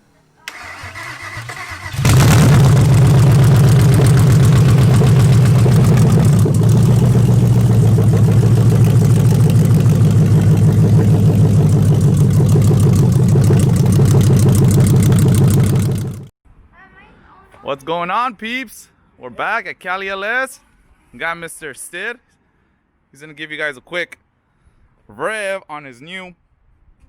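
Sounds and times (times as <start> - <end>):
starter cranking: 0.5 - 16.3
loud engine idle: 1.4 - 16.3.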